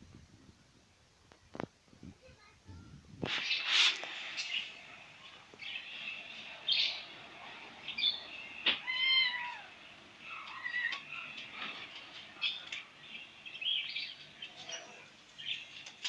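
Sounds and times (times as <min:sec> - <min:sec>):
cat meowing: 0:08.7 - 0:09.7, 0:10.4 - 0:11.1.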